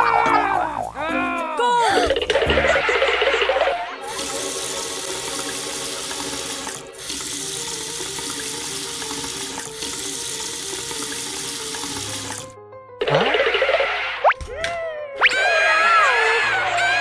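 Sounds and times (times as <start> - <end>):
running water gushing: 0.0 - 12.6.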